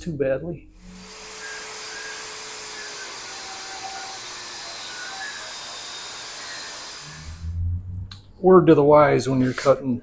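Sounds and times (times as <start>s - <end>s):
angle grinder cutting metal rod: 0.8s - 7.4s, 9.3s - 9.8s.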